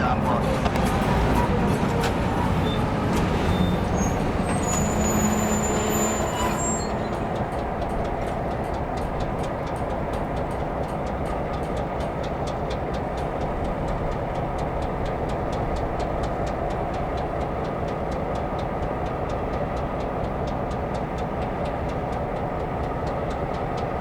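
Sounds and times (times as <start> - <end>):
high-pitched squeal: 0.0 - 7.6
diesel locomotive rumbling: 0.0 - 24.0.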